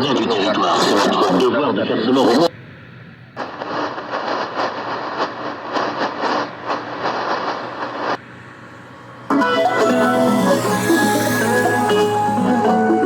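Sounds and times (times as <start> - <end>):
radio static hiss and crackling: 0.0 - 9.2
music from radio: 9.3 - 13.0.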